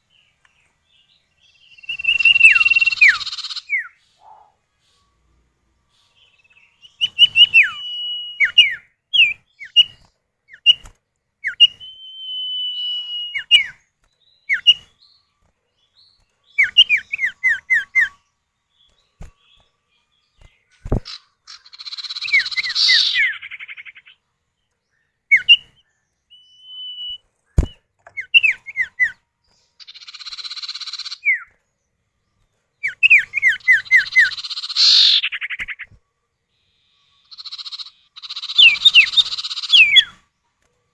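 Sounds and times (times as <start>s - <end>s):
birds whistling calls: 1.1s - 5.3s, 5.9s - 15.2s, 16.0s - 19.6s, 20.3s - 24.2s, 24.8s - 29.2s, 29.8s - 31.6s, 32.8s - 40.3s
harsh buzzy bird chatters: 37.2s - 40.0s.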